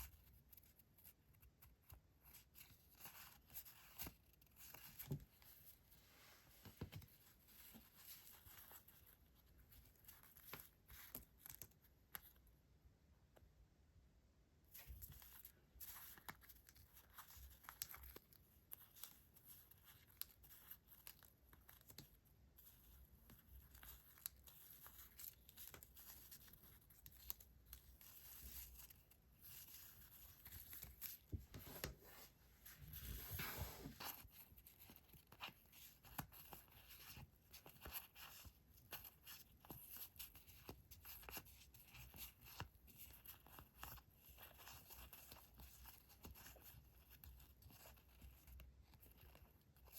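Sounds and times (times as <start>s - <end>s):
paper rustling: 23.4s - 46.8s.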